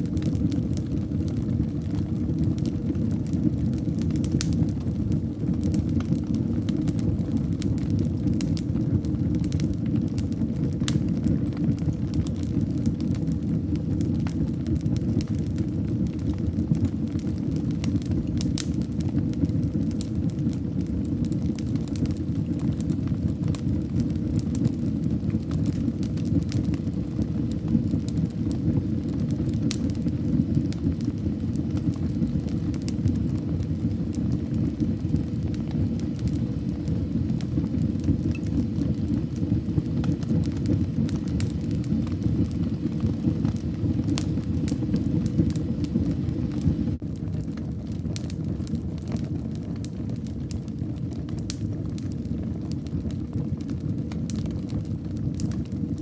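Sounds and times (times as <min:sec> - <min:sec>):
fire crackling in a fireplace: 0:00.0 - 0:56.0.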